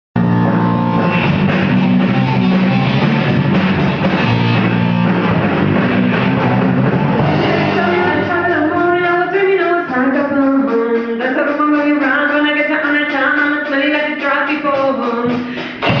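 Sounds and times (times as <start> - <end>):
drums: 0.2 - 16.0
electric guitars: 0.2 - 16.0.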